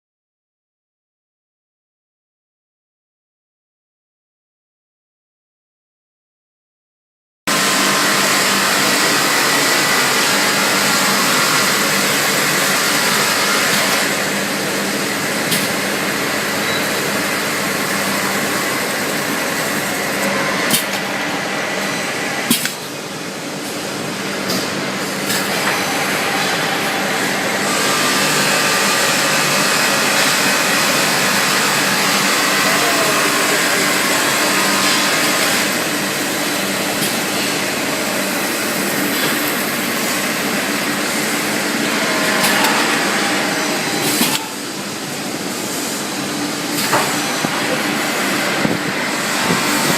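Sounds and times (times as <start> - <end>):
sanding machine grinding: 7.5 - 15.3, 25.8 - 36.8.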